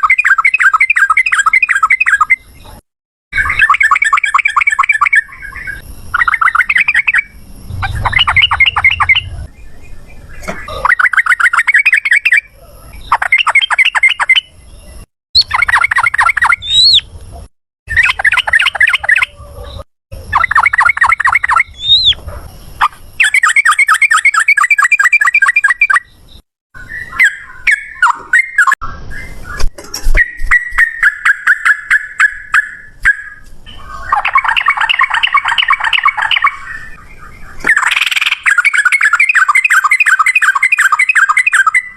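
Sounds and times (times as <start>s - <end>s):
bulbul singing rattling bursts: 6.1s - 12.4s.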